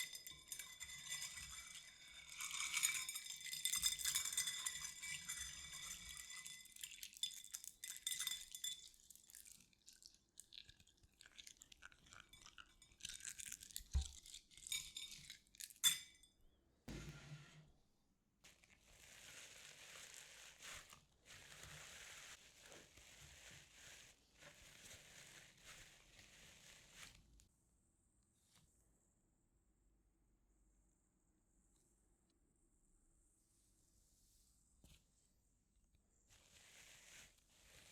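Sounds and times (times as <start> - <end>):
small hard objects clinking: 0.0 - 16.3.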